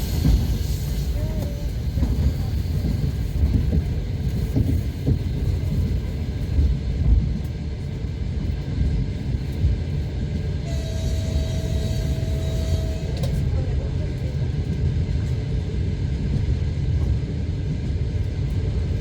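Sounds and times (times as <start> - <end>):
train knocks: 0.0 - 7.6
train wheels rumbling on rails: 0.0 - 19.0.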